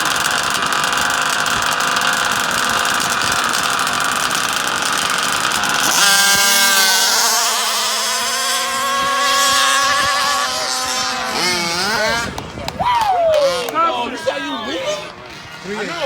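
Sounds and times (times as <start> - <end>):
small two-stroke engine whining: 0.0 - 16.0.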